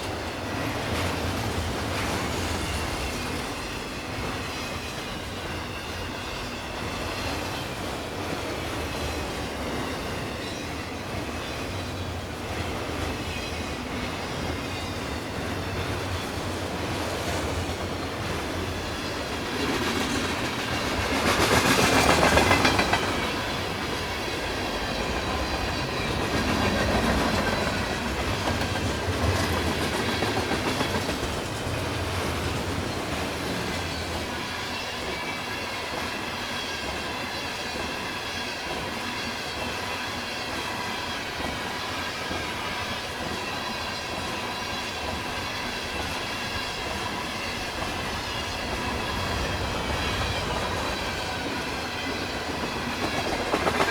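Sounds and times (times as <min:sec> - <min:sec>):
freight train cars rolling: 0:00.0 - 0:53.9
wheels clicking over rail joints: 0:17.0 - 0:34.2.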